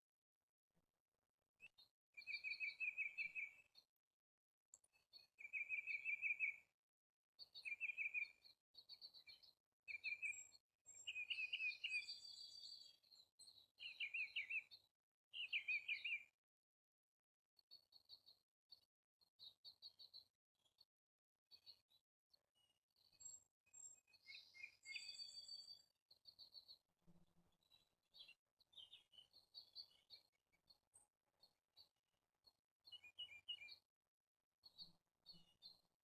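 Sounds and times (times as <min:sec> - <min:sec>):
songbird singing: 0:02.2 - 0:03.7, 0:05.4 - 0:06.6, 0:07.5 - 0:14.8, 0:15.4 - 0:16.3, 0:22.6 - 0:26.7, 0:27.6 - 0:30.3, 0:32.9 - 0:33.8.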